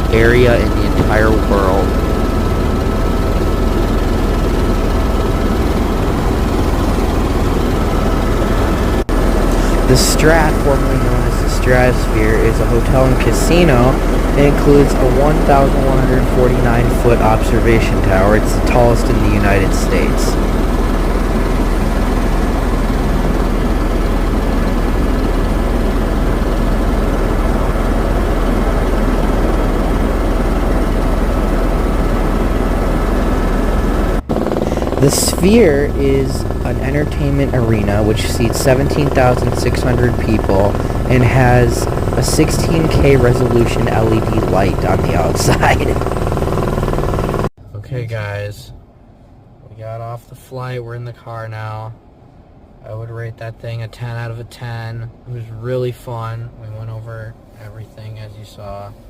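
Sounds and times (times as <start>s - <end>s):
helicopter engine and rotor: 0.0s - 47.5s.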